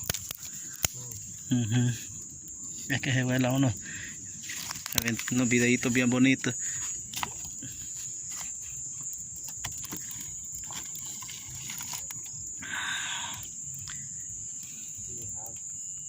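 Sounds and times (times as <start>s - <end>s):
high-pitched insect chorus: 0.0s - 16.0s
scattered clicks: 4.5s - 5.6s.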